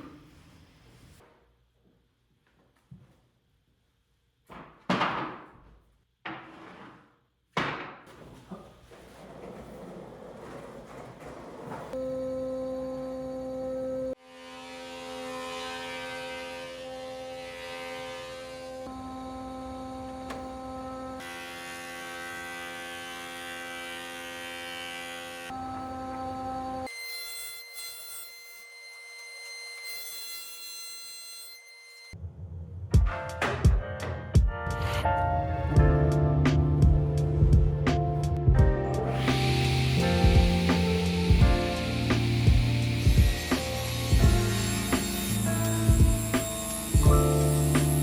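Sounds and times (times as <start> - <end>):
woodworking machine humming: 8.8 - 27.4, 36.4 - 48.0.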